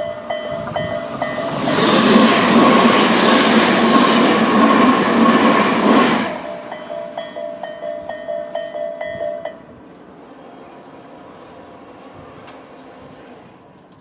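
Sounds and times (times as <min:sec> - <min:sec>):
train rushing past: 0:00.0 - 0:14.0
level crossing alarm chiming: 0:06.4 - 0:09.7.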